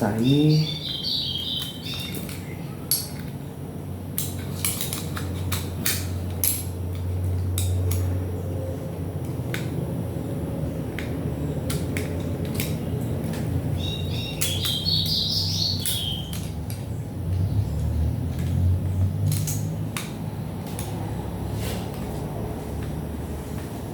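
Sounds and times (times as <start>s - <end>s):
small parts and tools clinking: 4.2s - 8.1s, 10.9s - 15.1s, 15.7s - 17.5s.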